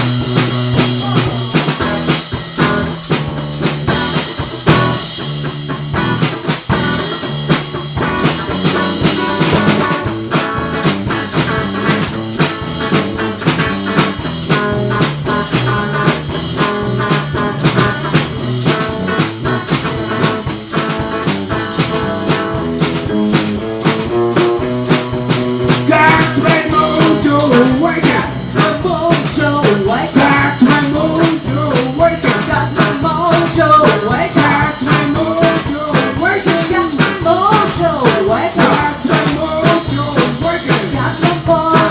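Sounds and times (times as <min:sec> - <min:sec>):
blues band playing: 0:00.0 - 0:41.9.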